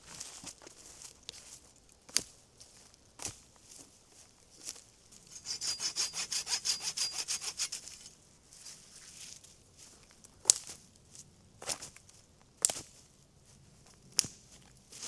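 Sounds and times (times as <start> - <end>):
hand saw cutting wood: 5.3 - 8.0.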